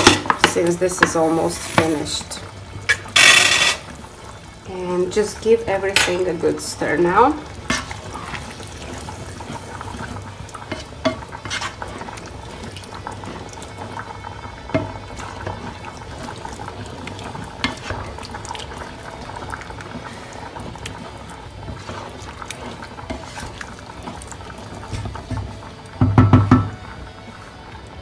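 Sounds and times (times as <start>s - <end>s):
sauce simmering: 0.0s - 28.0s
spoon scraping a pan: 2.9s - 3.9s, 7.6s - 9.7s, 10.6s - 12.7s, 21.0s - 25.5s.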